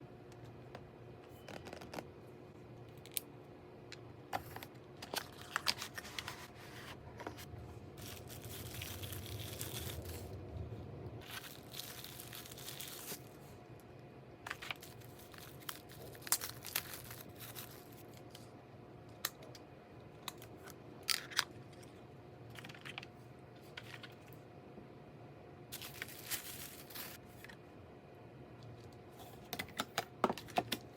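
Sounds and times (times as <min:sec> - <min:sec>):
packaging rustling and crinkling: 0:08.0 - 0:10.4, 0:11.2 - 0:13.4, 0:14.5 - 0:18.3, 0:25.7 - 0:27.2.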